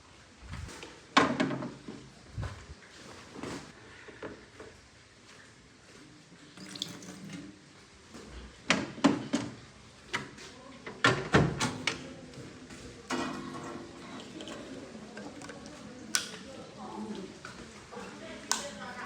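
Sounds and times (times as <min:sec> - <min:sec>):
tap water running: 0:06.6 - 0:07.5, 0:13.1 - 0:18.6.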